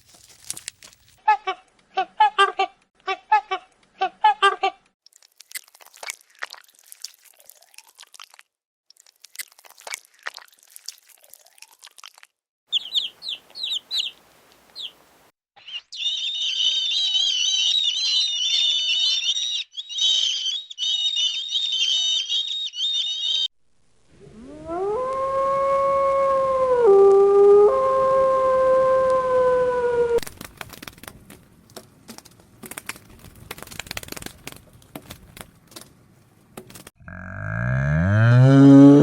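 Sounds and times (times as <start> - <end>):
crunching chewing clicks: 5.0 - 12.3
small birds peeping: 12.7 - 15.0, 15.6 - 23.5.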